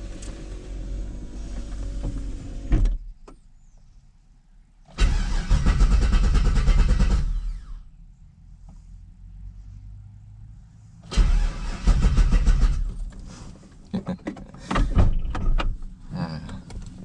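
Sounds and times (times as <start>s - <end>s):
engine cranking on starter: 4.9s - 7.8s, 11.1s - 13.6s.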